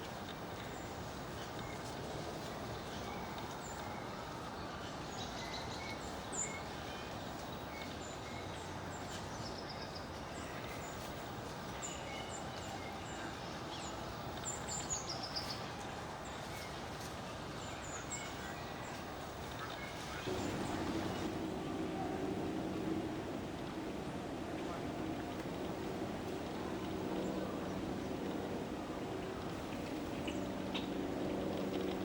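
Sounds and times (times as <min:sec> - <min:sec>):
songbirds calling: 0:00.0 - 0:32.0
steady background rumble: 0:17.6 - 0:32.0.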